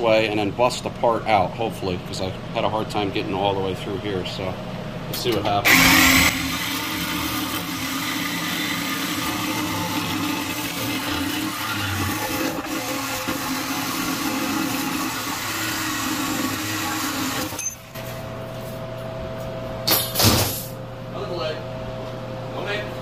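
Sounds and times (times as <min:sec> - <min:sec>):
steady low hum: 0:00.0 - 0:06.3, 0:17.6 - 0:23.0
angle grinder cutting steel: 0:05.7 - 0:17.6.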